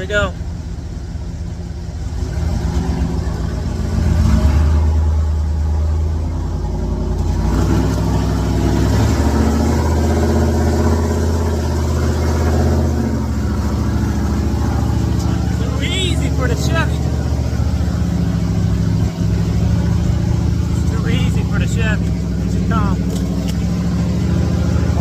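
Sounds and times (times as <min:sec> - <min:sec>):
truck engine revving hard: 0:01.9 - 0:25.0.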